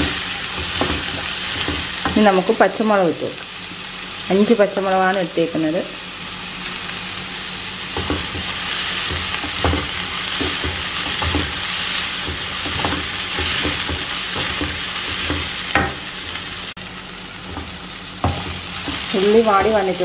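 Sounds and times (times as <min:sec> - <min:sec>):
onions sizzling in oil: 0:00.0 - 0:20.0
wooden spatula stirring and scraping: 0:07.9 - 0:16.4.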